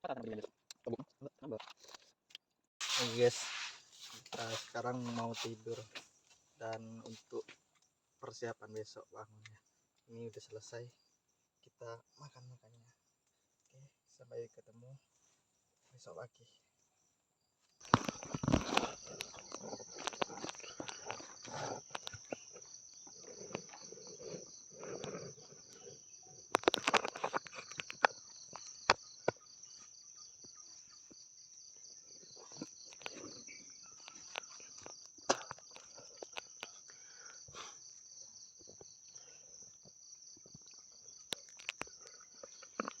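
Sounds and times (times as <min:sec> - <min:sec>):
pulsing insect trill: 0:06.6 - 0:43.0
sharp clicks and rustles: 0:26.5 - 0:29.4.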